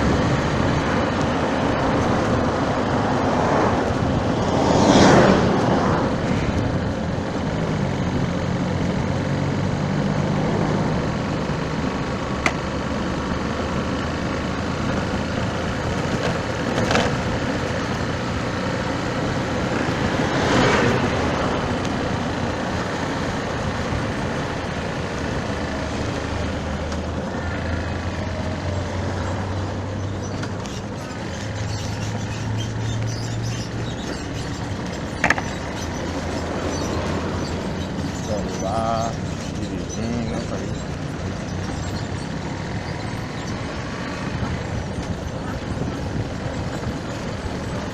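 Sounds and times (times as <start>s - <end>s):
wind noise: 0.0s - 11.2s, 40.8s - 47.9s
cars and trucks passing: 0.0s - 47.9s.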